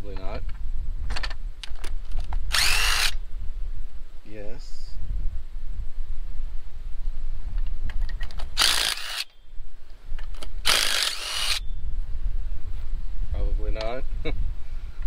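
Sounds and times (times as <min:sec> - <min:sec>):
cordless power tool running: 0:02.5 - 0:03.2, 0:08.6 - 0:09.3, 0:10.7 - 0:11.6.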